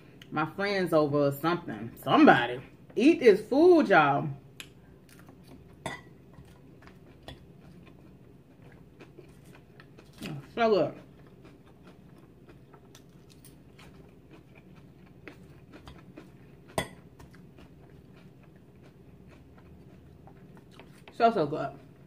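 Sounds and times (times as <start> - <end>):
chewing salad crunching: 4.5 - 22.0.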